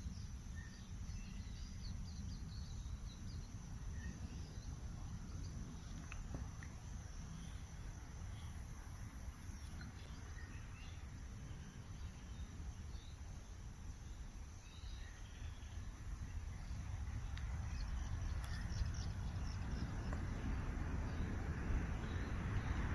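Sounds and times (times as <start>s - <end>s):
continuous low rumble: 0.0s - 22.9s
faint bird chirps: 14.0s - 20.2s.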